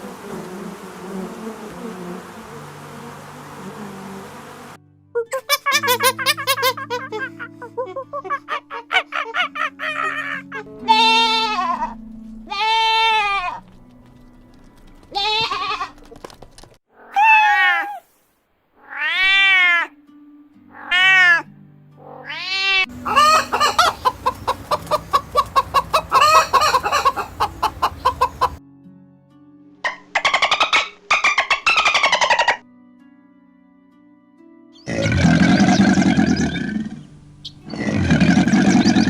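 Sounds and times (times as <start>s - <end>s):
quiet background music: 0.6s - 16.7s, 19.2s - 39.0s
animal calling: 16.9s - 18.1s, 20.7s - 28.6s, 34.8s - 39.0s.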